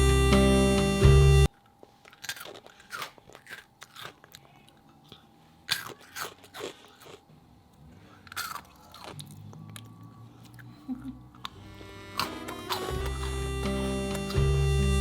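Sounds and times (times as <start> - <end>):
music sting: 0.0 - 1.5, 11.6 - 15.0
crunchy snack chewing: 1.7 - 7.3, 8.1 - 14.5.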